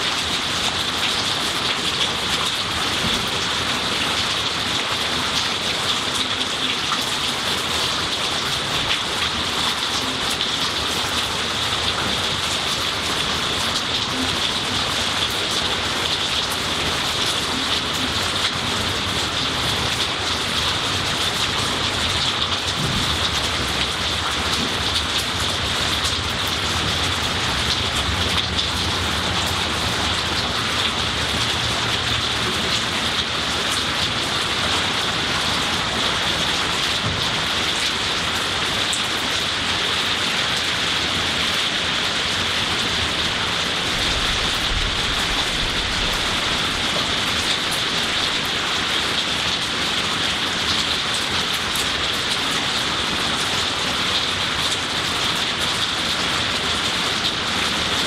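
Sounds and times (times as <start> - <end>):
rain falling on trees: 0.0 - 58.0.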